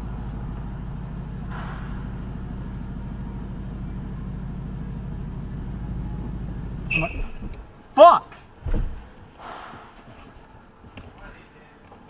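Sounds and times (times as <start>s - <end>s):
car engine idling at low revs: 0.0s - 9.3s.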